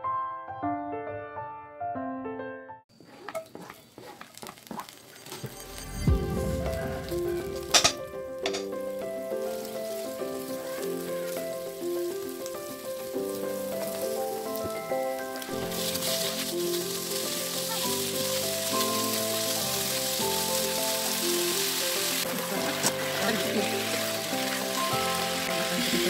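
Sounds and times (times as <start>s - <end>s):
chicken frying in oil: 3.0s - 26.0s
gentle background music: 5.6s - 26.0s.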